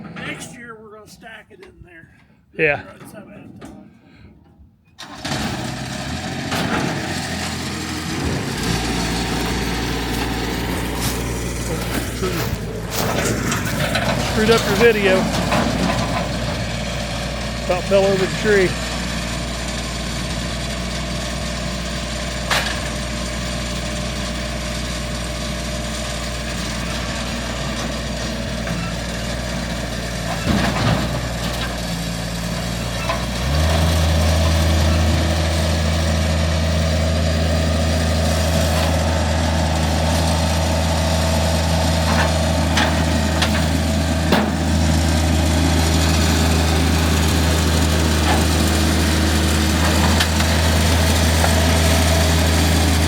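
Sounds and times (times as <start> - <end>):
engine running: 3.6 - 53.0
engine knocks: 5.0 - 23.6, 26.5 - 53.0.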